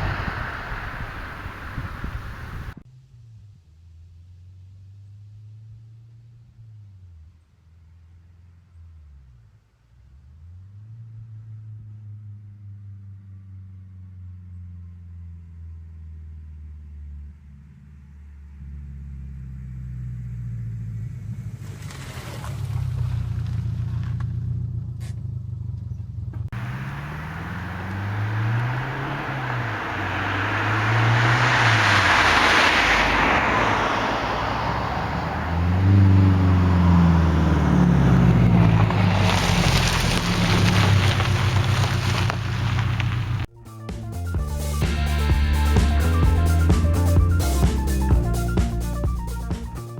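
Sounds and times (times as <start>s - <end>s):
car engine revving: 0.0s - 2.8s, 26.6s - 43.5s
steady hiss: 0.0s - 2.8s, 26.6s - 32.4s.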